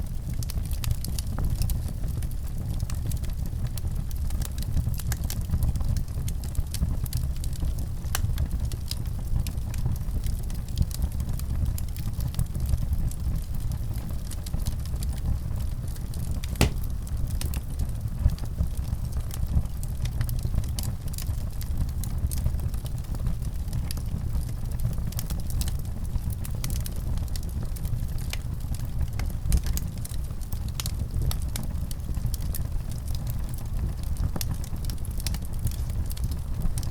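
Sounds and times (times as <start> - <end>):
wood fire crackling: 16.4 - 17.1.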